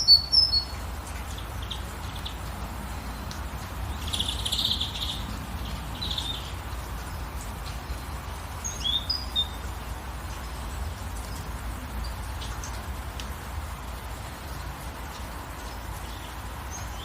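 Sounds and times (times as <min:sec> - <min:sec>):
light rain hissing: 0:00.0 - 0:17.0
songbirds chirping: 0:00.0 - 0:17.0.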